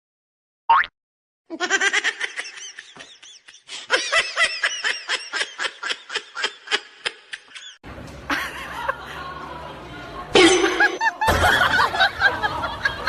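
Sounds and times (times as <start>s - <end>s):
person laughing hard: 1.5s - 9.4s.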